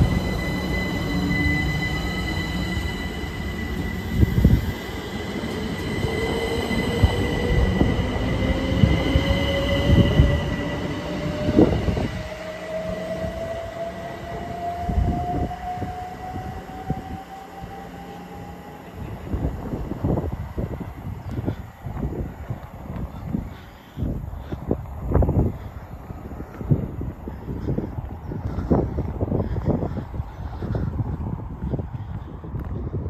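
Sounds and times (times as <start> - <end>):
train motor whine rising: 0.0 - 20.2
train wheel rumble: 0.0 - 33.0.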